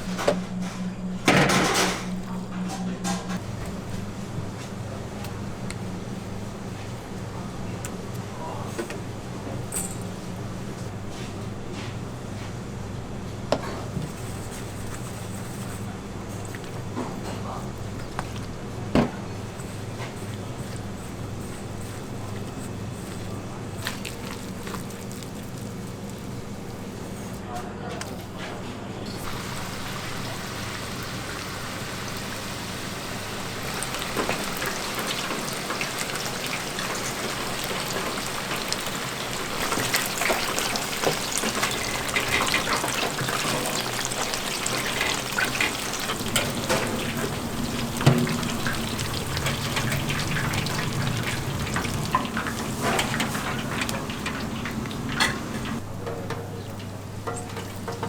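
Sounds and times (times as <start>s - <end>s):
food sizzling in hot oil: 29.2s - 55.8s.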